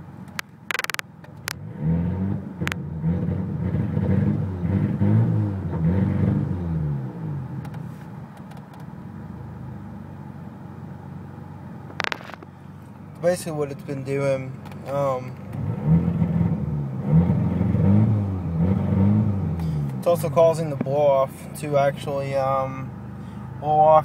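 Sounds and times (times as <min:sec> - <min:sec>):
sharp clicks: 0:00.3 - 0:01.6
car engine revving: 0:00.7 - 0:07.8, 0:15.0 - 0:23.6.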